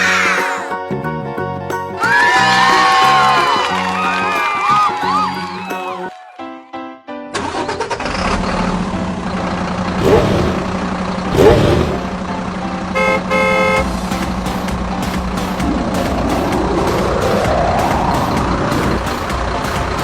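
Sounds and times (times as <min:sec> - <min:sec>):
vehicle engine running: 0:08.0 - 0:20.0
horn honks: 0:12.9 - 0:14.1.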